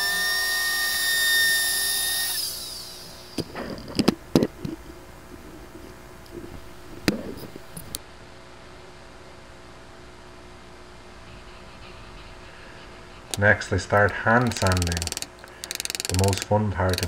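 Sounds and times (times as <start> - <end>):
router whining and spinning down: 0.0 - 4.1, 13.3 - 17.0.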